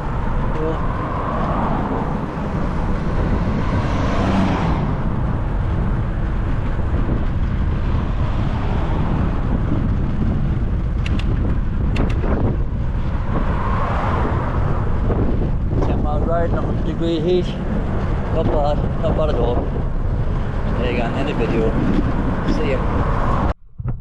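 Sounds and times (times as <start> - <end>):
vehicle passing: 0.0 - 23.5
road traffic: 0.0 - 23.6
wind rumble on microphone: 0.0 - 24.0
sharp clicks: 11.0 - 12.3.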